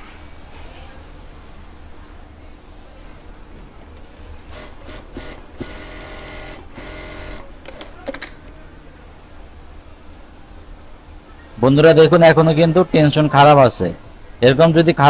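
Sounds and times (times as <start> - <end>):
sewing machine sewing: 4.5 - 7.8.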